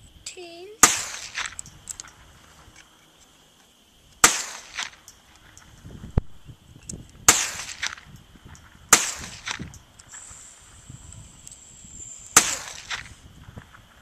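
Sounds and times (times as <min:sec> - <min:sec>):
metallic cartridge clicks: 0:01.5 - 0:02.2.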